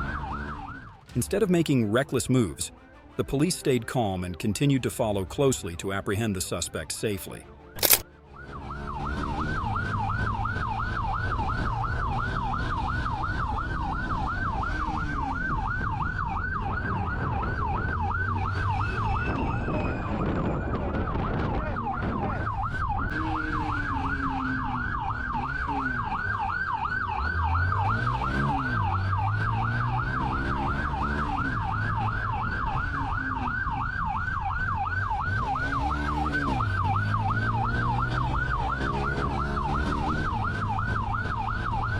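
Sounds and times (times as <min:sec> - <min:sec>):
police siren yelping: 0:00.0 - 0:01.2, 0:07.8 - 0:41.9
car engine revving: 0:08.4 - 0:19.9, 0:22.8 - 0:41.9.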